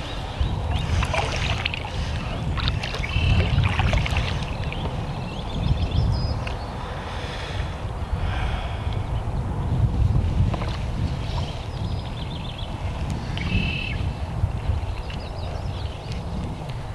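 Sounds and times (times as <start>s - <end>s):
wind rumbling on microphone: 0.0s - 16.9s
water splashing around canoe: 0.6s - 5.1s.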